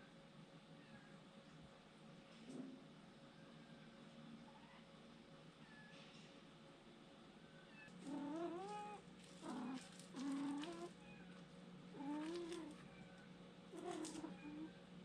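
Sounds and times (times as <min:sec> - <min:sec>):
faint steady hum: 0:00.0 - 0:15.0
cat meowing: 0:13.8 - 0:14.8.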